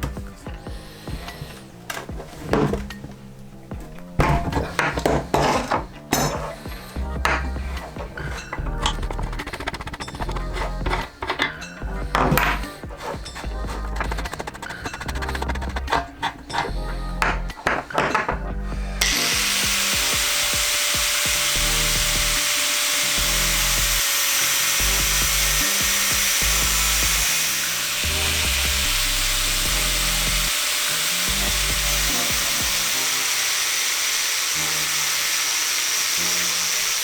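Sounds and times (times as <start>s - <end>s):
background music with bass: 0.0s - 33.5s
power tool high hiss: 18.7s - 37.0s.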